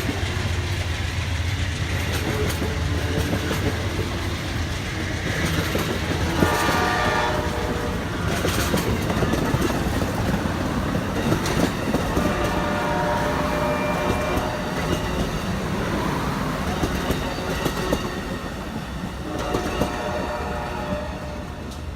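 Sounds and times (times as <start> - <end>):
train rumble and wheel clatter: 0.0 - 21.9
train horn chord: 6.2 - 8.1, 12.1 - 14.7, 19.2 - 21.9.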